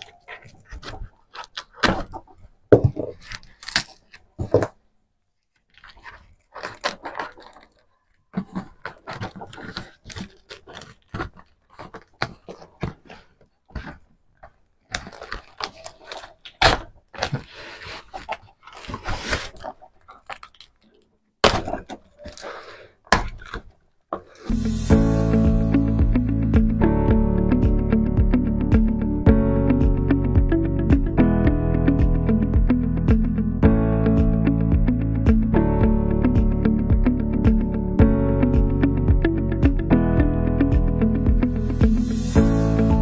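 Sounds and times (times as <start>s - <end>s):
packaging rustling: 3.1s - 21.0s.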